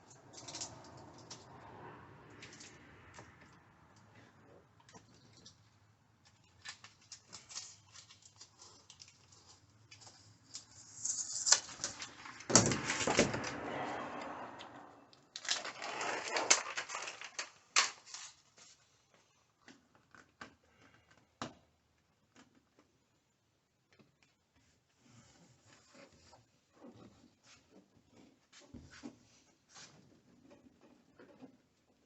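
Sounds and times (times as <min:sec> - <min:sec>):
rustling or scraping: 0:06.4 - 0:19.1, 0:25.1 - 0:31.6.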